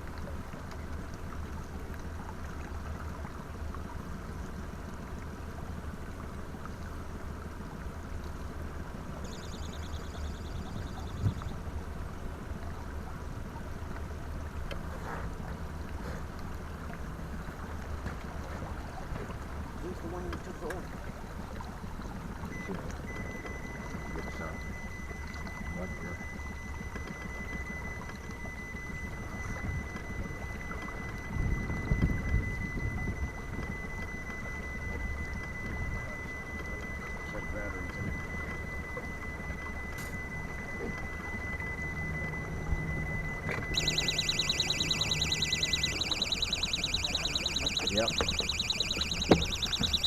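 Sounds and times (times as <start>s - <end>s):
faint high whine: 9.1s - 11.9s, 22.5s - 50.0s.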